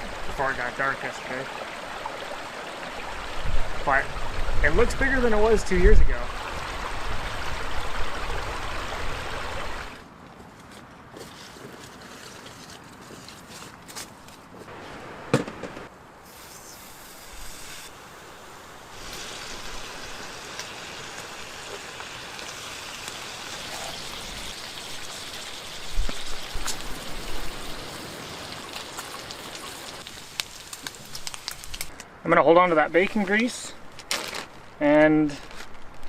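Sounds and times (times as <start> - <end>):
bacon sizzling in a pan: 18.7 - 31.9
pops and crackles: 26.0 - 27.0, 28.7 - 32.0.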